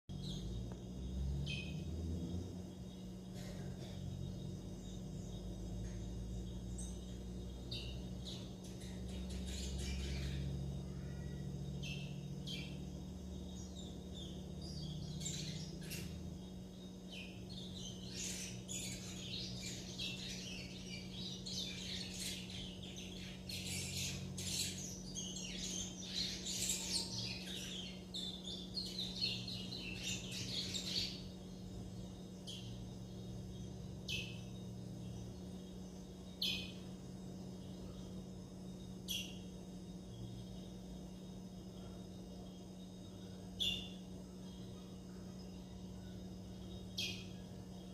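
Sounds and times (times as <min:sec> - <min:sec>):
steady low hum: 0:00.0 - 0:47.9
finches chirping and twittering: 0:00.1 - 0:47.9.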